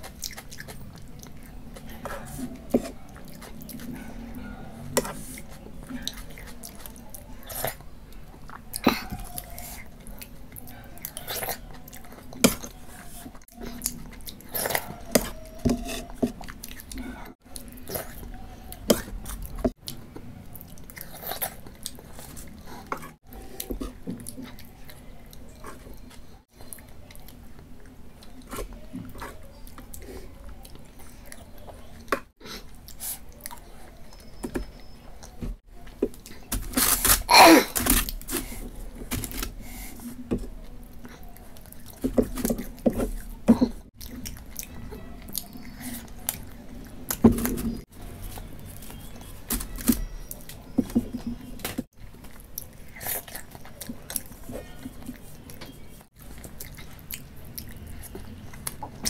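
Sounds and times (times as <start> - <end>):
wet chewing and mouth smacks: 0.0 - 4.4, 52.0 - 59.0.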